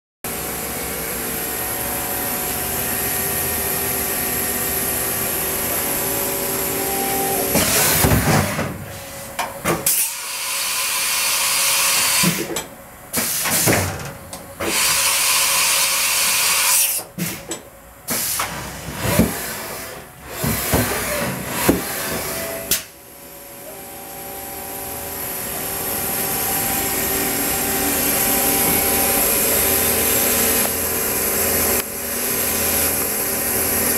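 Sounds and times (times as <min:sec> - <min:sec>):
machine hum: 0:00.3 - 0:09.7, 0:18.8 - 0:33.9
machine whines: 0:00.3 - 0:12.4, 0:18.4 - 0:33.9.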